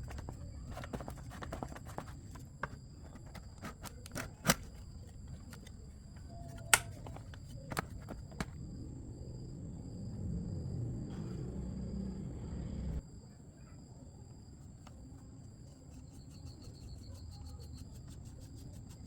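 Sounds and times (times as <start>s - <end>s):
clicks and light knocks: 0.0s - 8.6s.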